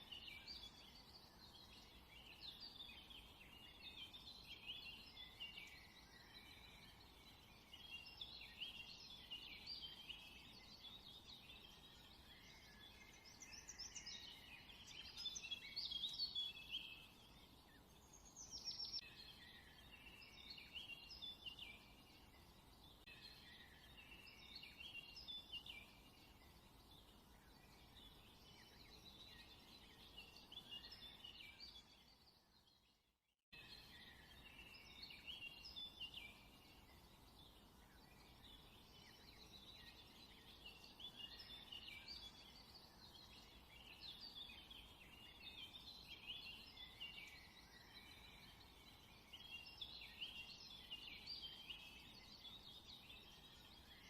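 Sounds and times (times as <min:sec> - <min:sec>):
birds chirping: 0:00.0 - 0:32.7.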